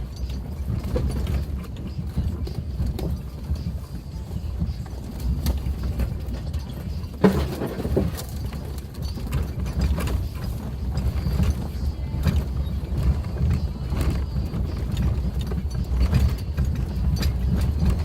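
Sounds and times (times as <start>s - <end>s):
car engine and road rumble: 0.0s - 18.0s
car body knocks and rattles: 4.6s - 18.0s.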